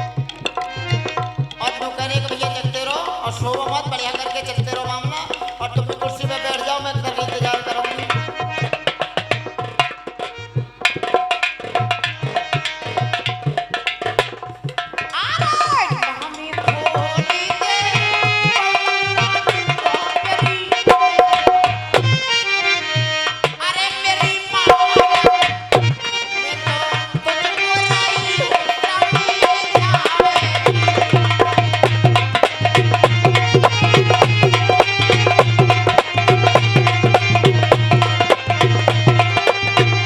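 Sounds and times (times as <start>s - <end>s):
hand drum rhythm: 0.0s - 40.0s
sliding melodic instrument: 21.0s - 40.0s.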